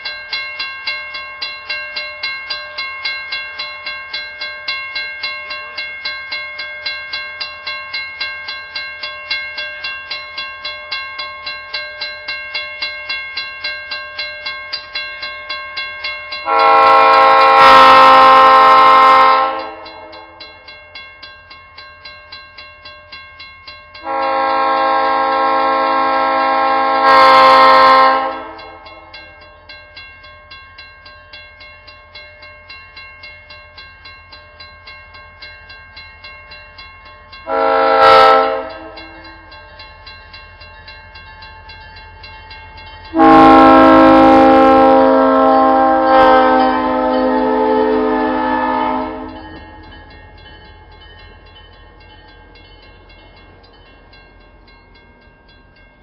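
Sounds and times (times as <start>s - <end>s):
bell ringing steadily: 0.0s - 56.0s
locomotive air horn: 16.4s - 20.2s, 24.0s - 28.8s, 37.5s - 39.3s, 43.1s - 49.4s.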